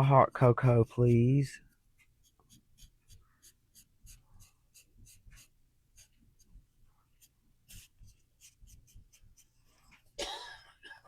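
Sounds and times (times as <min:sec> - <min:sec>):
paintbrush scratchy strokes: 0:01.7 - 0:10.1.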